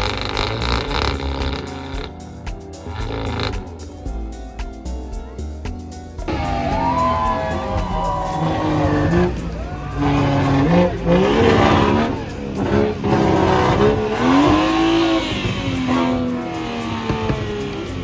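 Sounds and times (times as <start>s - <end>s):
car engines revving: 0.0s - 3.9s, 6.2s - 18.0s
tyres squealing: 6.3s - 18.0s.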